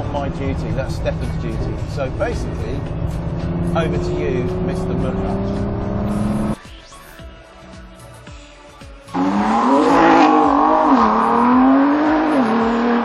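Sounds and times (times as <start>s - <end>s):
car engine accelerating hard: 0.0s - 6.6s, 9.1s - 13.0s.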